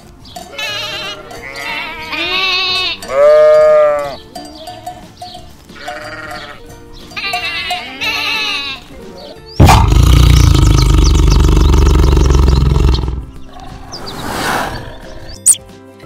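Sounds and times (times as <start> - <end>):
sheep bleating: 0.5 - 5.1, 5.7 - 9.1
tiger roaring: 9.6 - 13.6
tiger growling: 9.6 - 15.5.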